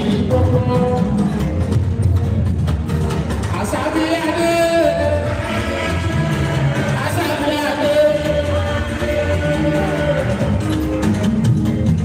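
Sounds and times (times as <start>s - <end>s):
live band music: 0.0s - 12.0s.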